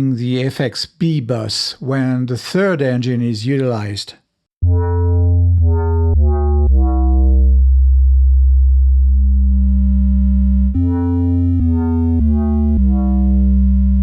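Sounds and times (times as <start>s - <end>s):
deep synth bass phrase: 4.6s - 14.0s.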